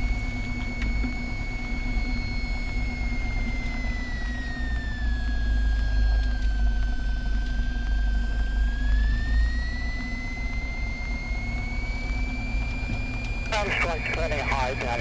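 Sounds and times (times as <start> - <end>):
thin high whine: 13.4 - 15.0
piston engine rumble through intercom: 13.5 - 15.0.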